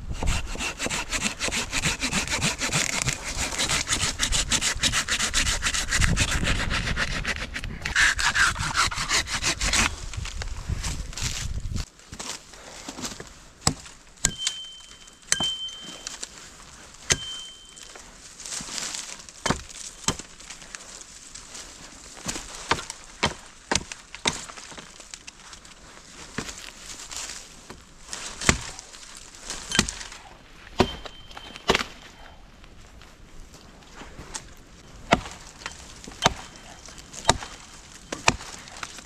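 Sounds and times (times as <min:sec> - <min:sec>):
wood chopping strikes: 0:13.6 - 0:16.3, 0:17.0 - 0:17.6, 0:18.6 - 0:20.4, 0:22.2 - 0:24.9, 0:28.4 - 0:28.8, 0:29.5 - 0:32.1, 0:35.0 - 0:39.0.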